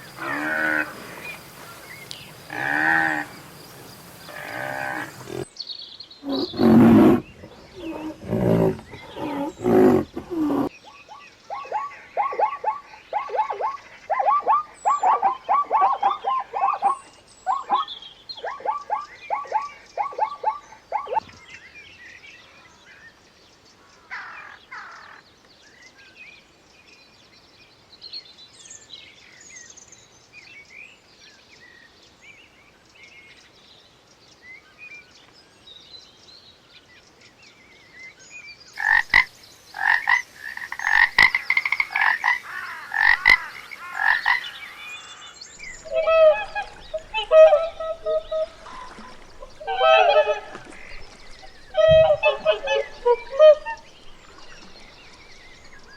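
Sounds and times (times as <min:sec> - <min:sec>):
deep roar-like animal calls: 0:02.4 - 0:03.4, 0:04.2 - 0:05.5, 0:06.2 - 0:10.7, 0:45.6 - 0:55.9.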